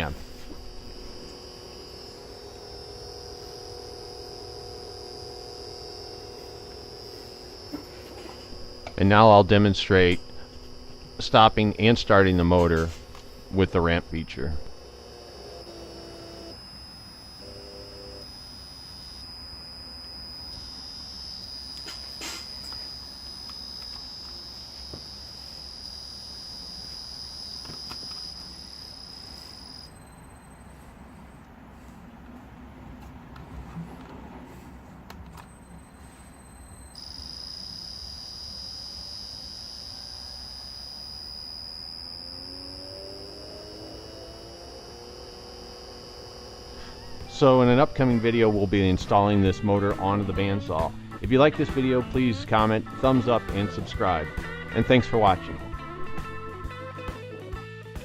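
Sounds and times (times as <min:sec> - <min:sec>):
short low tones: 0:00.0 - 0:30.4, 0:35.6 - 0:50.8
electric motor whining: 0:00.0 - 0:31.1, 0:35.3 - 0:56.8
click: 0:21.7 - 0:25.1, 0:35.1 - 0:35.6.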